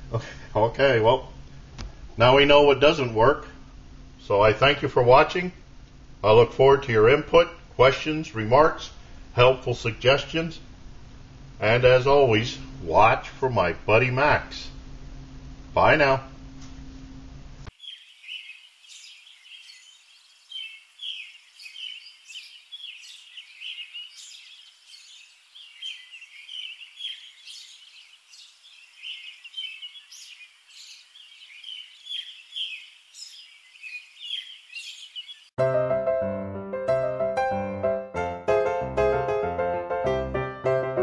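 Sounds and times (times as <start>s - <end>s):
small birds chirping: 17.7s - 35.6s.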